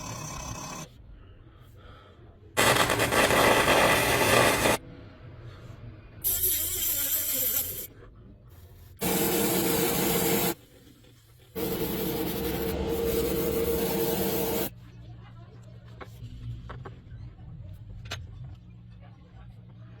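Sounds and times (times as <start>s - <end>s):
spray nozzle hissing: 2.6s - 4.8s, 9.0s - 10.6s, 11.6s - 14.7s.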